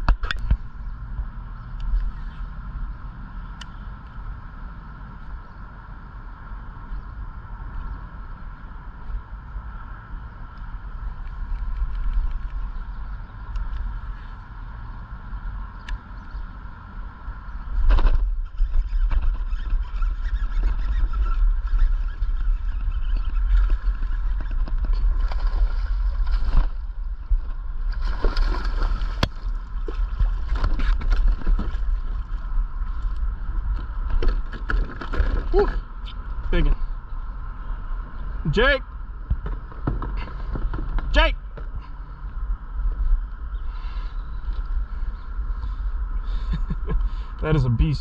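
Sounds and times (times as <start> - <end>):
wind rumbling on microphone: 0.0 - 48.0
water splashing and sloshing: 21.6 - 36.2.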